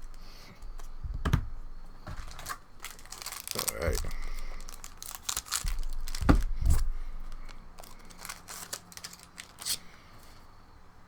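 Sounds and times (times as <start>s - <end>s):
cards crackling and clicking: 2.0s - 10.3s
wrapper tearing and crinkling: 2.1s - 9.8s.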